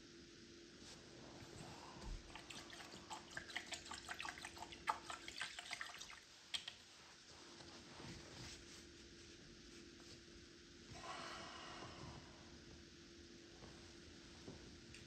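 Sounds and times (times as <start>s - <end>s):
small wet clicks and drips: 2.2s - 6.9s.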